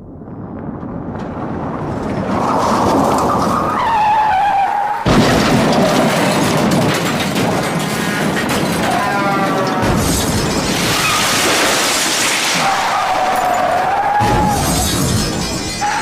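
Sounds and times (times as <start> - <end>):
debris knocks and rattles: 0.3 - 4.2, 5.0 - 16.0
loud car crash: 0.4 - 16.0.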